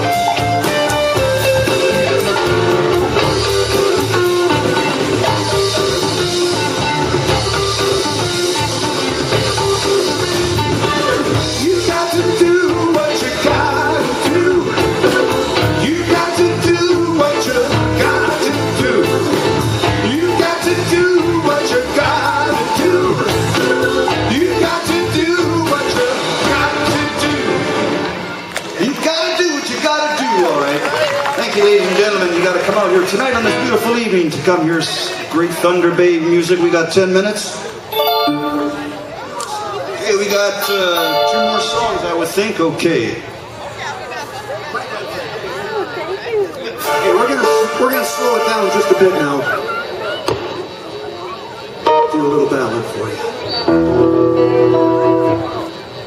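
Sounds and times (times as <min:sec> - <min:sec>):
live blues band playing: 0:00.0 - 0:28.5, 0:37.9 - 0:42.4, 0:53.4 - 0:56.0
drums: 0:00.0 - 0:29.0
electric guitar lead lines: 0:37.9 - 0:39.7, 0:40.3 - 0:42.7.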